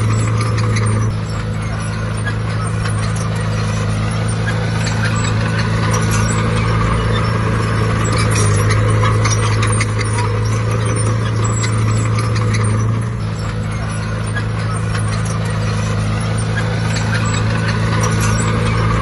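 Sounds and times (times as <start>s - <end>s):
diesel machinery engine running: 0.0s - 19.0s
metallic clanks and rattles: 0.0s - 19.0s.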